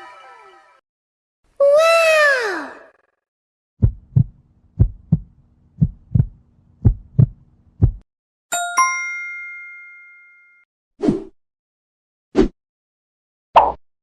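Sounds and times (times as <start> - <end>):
heartbeat thumps: 3.8 - 8.0
bell-like dings: 8.5 - 10.6.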